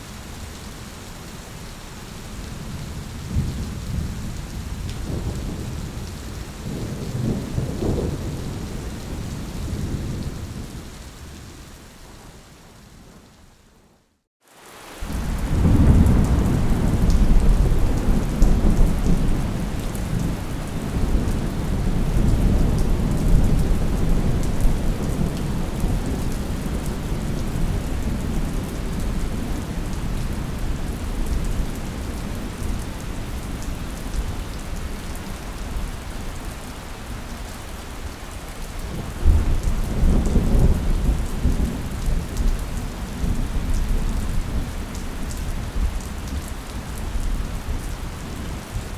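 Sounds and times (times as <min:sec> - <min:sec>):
steady rain: 0:00.0 - 0:48.9
rolling thunder: 0:02.7 - 0:10.9, 0:15.1 - 0:31.7, 0:38.9 - 0:44.8.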